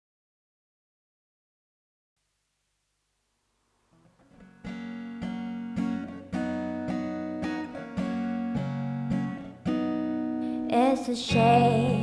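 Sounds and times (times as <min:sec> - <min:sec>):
acoustic guitar chords: 0:03.9 - 0:12.0.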